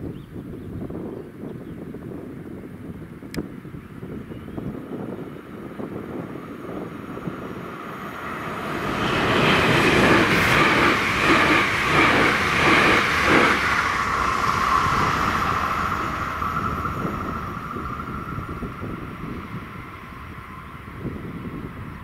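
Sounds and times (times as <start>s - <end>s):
train rumbling past: 4.8s - 22.0s.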